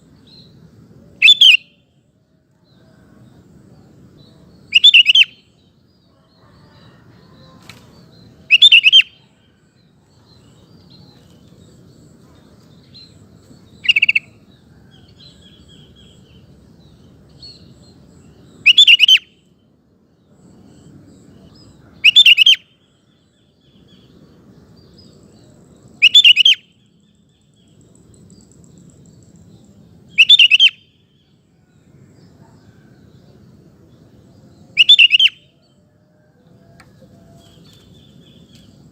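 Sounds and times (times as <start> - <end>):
bird singing bubbly phrases: 1.2 - 1.7, 4.7 - 5.4, 8.5 - 9.2, 13.8 - 14.4, 18.6 - 19.3, 22.0 - 22.7, 26.0 - 26.6, 30.1 - 31.0, 34.7 - 35.5.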